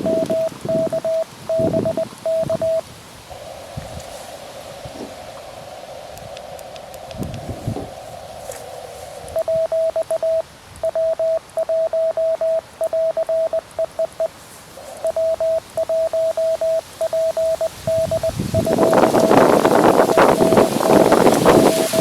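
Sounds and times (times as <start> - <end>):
morse code tone: 0.0 - 2.8, 9.3 - 14.3, 15.0 - 22.0
radio receiver hiss: 0.0 - 22.0.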